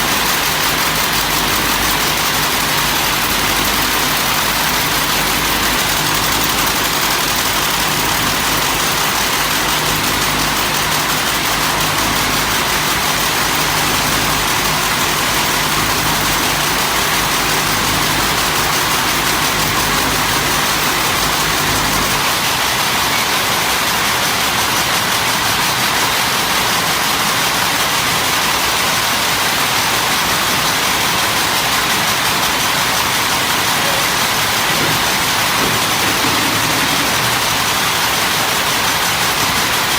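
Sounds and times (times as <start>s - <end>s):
machine hissing: 0.0s - 23.4s, 32.5s - 39.9s.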